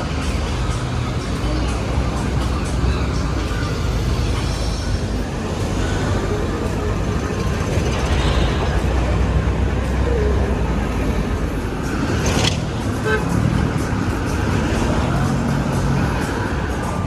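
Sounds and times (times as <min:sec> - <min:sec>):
traffic rumble: 0:00.0 - 0:17.0
car horn toot: 0:12.8 - 0:14.1.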